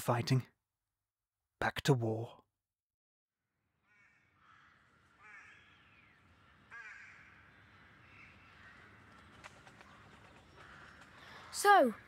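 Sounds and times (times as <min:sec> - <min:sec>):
faint bird calls: 0:03.8 - 0:12.0.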